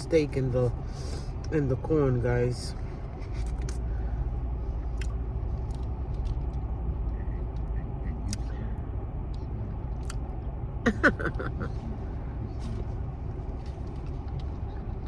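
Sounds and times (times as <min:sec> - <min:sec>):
car cabin rumble: 0:00.0 - 0:15.0
faint clicks and rustles: 0:02.8 - 0:04.0, 0:04.6 - 0:08.5, 0:12.5 - 0:15.0.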